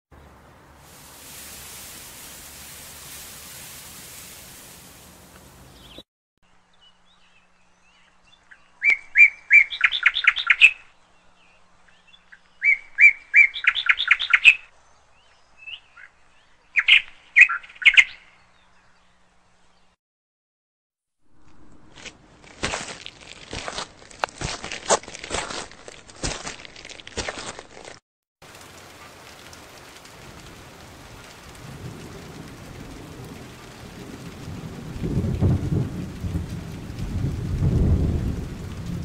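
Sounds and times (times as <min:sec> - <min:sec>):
songbird singing: 0:00.1 - 0:00.8, 0:05.0 - 0:20.0
steady hiss: 0:00.8 - 0:06.0.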